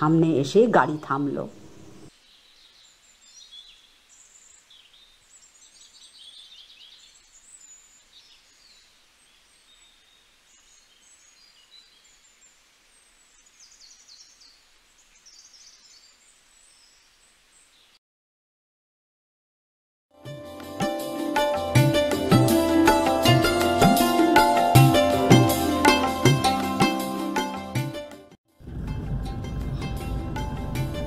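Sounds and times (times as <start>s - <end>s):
small birds chirping and trilling: 0.9s - 18.0s.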